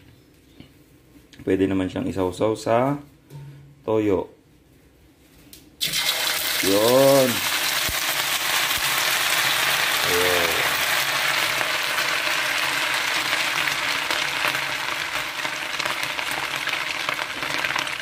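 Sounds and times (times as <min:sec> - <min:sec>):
food sizzling in hot oil: 0:05.8 - 0:18.0.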